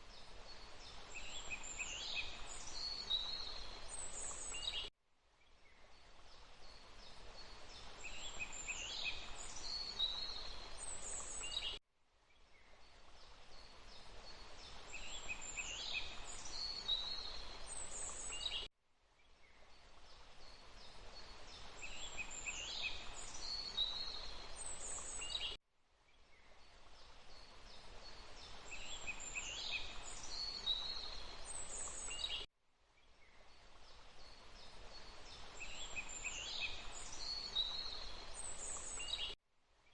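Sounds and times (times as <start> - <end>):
rushing water: 0.0 - 4.8, 6.0 - 11.7, 12.8 - 18.6, 19.6 - 25.5, 26.7 - 32.4, 33.5 - 39.4
birds chirping and trilling: 21.8 - 25.6, 34.9 - 39.4.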